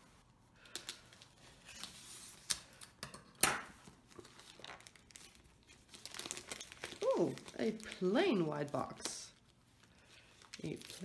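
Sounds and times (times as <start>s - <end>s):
package wrapping tearing and crinkling: 4.1s - 11.0s.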